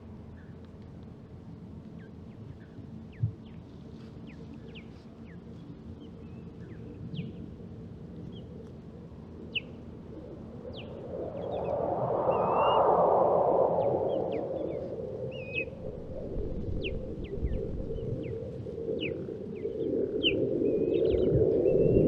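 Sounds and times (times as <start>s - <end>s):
broad rushing noise: 10.4s - 22.0s
osprey whistled calls: 10.7s - 13.0s, 13.7s - 15.8s, 16.8s - 22.0s.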